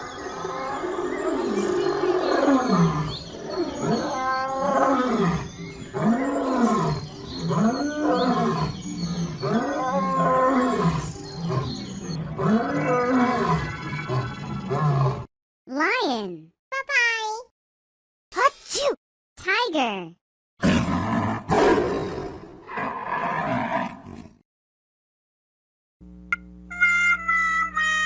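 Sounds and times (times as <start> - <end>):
lion roaring: 0.3 - 15.3, 20.6 - 24.4.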